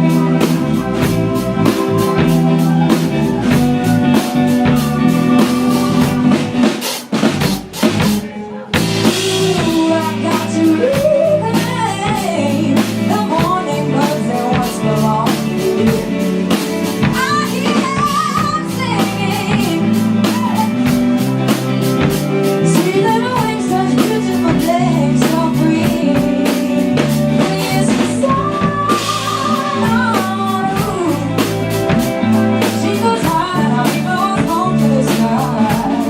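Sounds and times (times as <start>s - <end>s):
woman singing: 0.0s - 6.8s, 8.2s - 36.0s
drum kit beat: 0.0s - 36.0s
live rock band playing: 0.0s - 36.0s.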